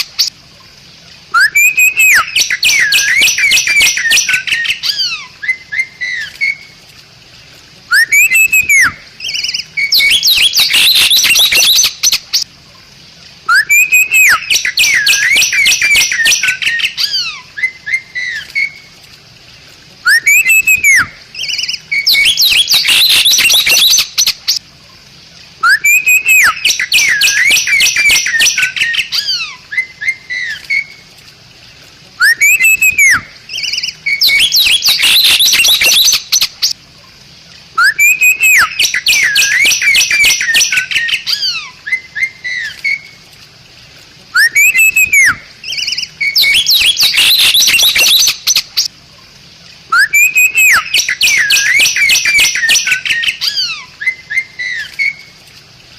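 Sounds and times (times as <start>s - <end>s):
myna singing whistles and chatter: 7.9s - 9.0s, 20.1s - 21.1s, 32.2s - 33.2s, 44.4s - 45.4s, 50.0s - 53.4s.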